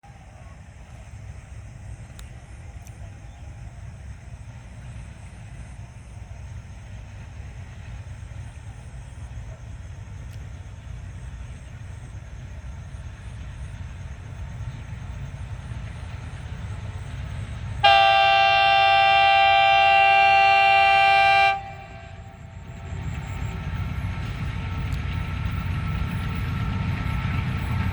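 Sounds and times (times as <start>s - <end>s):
train rumbling: 0.0s - 27.9s
train horn blast: 17.8s - 22.8s.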